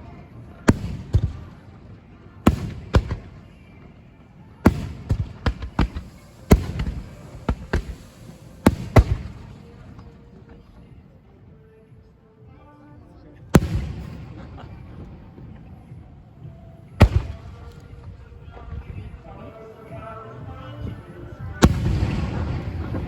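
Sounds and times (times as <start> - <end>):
low rumbling echo: 4.6 - 10.8, 13.5 - 19.4, 21.3 - 23.0
firework shells bursting: 4.7 - 10.1.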